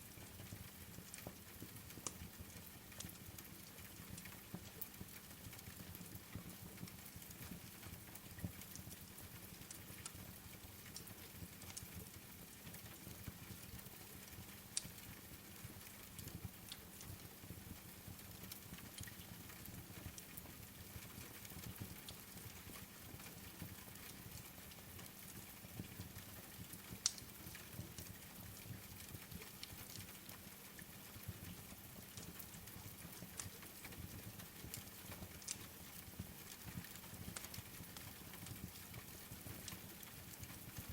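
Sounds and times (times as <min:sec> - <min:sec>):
soft rain hiss: 0:00.0 - 0:40.9
wood fire crackling and popping: 0:08.4 - 0:12.2, 0:12.8 - 0:17.2, 0:17.8 - 0:40.9.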